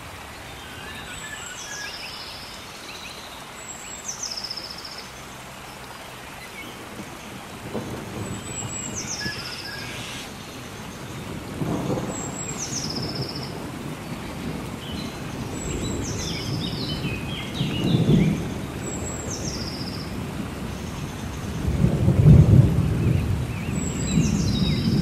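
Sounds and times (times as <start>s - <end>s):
steady rain: 0.0s - 25.0s
thunder rumbling: 6.9s - 19.5s, 20.1s - 25.0s
bird whistling call: 8.6s - 10.3s.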